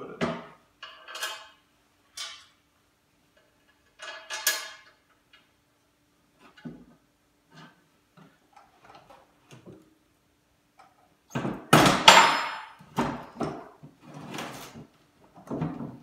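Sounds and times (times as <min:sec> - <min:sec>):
metal parts knocking and clanking: 0:00.8 - 0:01.6, 0:03.7 - 0:05.0.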